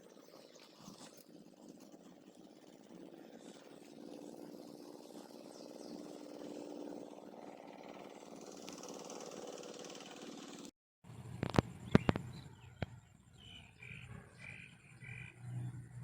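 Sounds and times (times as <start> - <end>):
small engine running: 0.0 - 10.7.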